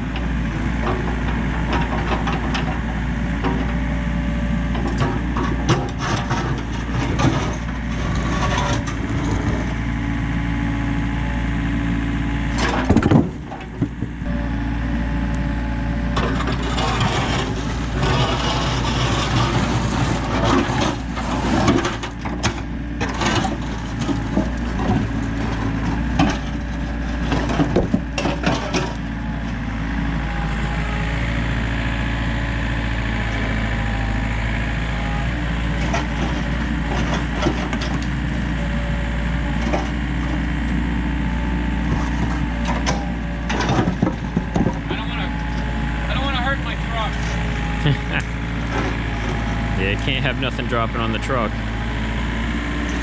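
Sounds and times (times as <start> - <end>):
excavator diesel engine running: 0.0 - 53.0
concrete slabs clunking and scraping: 0.2 - 3.9, 4.6 - 9.9, 12.5 - 14.4, 16.0 - 29.6, 35.2 - 46.5, 47.1 - 53.0.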